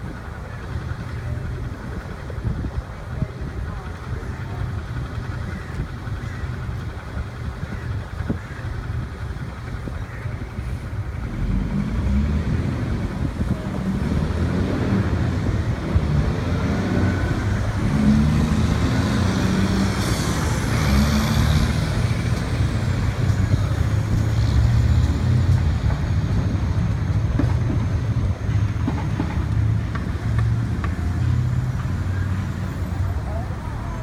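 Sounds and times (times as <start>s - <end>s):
traffic engine rumble: 0.0s - 34.0s.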